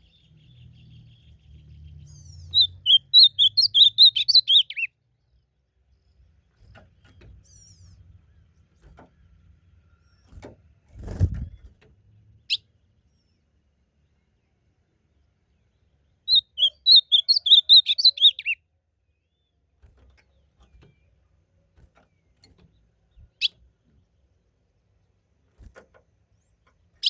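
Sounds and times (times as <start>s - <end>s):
bird singing warbled phrase: 0.0s - 4.9s, 16.1s - 19.6s.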